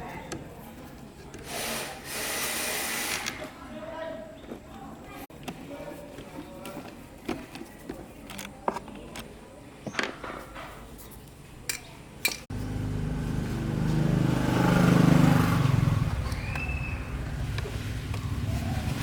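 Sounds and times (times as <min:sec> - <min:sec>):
steady motor hum: 0:12.5 - 0:18.5.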